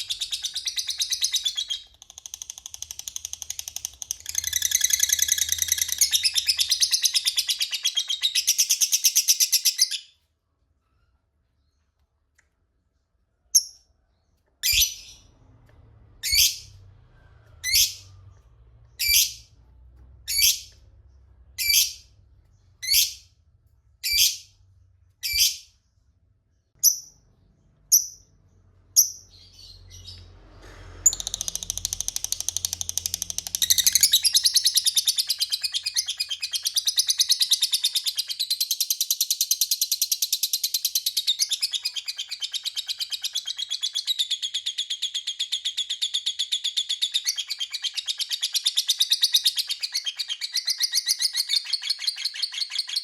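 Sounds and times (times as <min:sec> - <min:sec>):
bird rapid chattering trill: 0:00.0 - 0:09.7
bird high chirps: 0:00.0 - 0:11.9, 0:13.6 - 0:19.6, 0:20.2 - 0:23.3, 0:24.0 - 0:26.0, 0:31.1 - 0:53.0.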